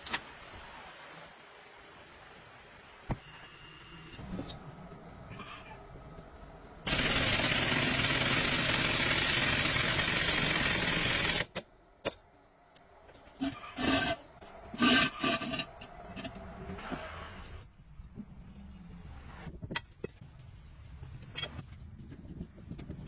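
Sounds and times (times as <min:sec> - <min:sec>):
loud steady hiss: 0:06.9 - 0:11.6.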